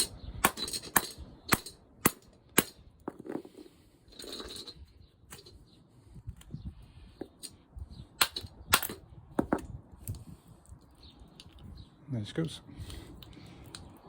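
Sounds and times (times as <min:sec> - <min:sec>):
handling noise: 0:00.0 - 0:05.8.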